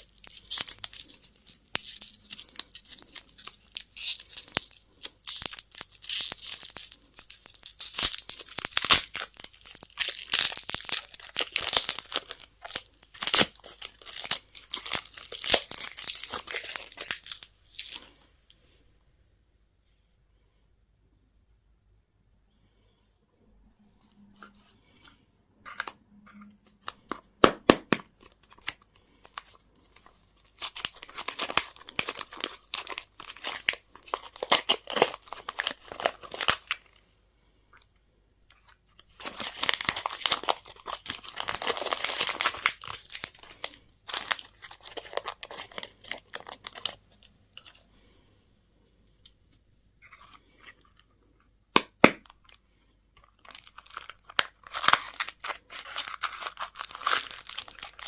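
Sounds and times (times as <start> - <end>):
packaging crinkling and tearing: 0.0 - 18.2, 25.7 - 36.9, 38.5 - 47.9, 53.2 - 58.0.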